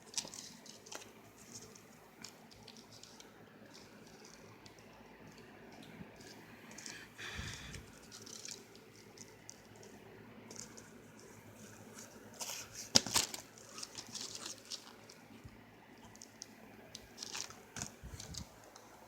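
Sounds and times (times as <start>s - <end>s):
plastic and cardboard crinkling: 0.0s - 5.4s, 7.7s - 15.3s, 16.0s - 19.0s.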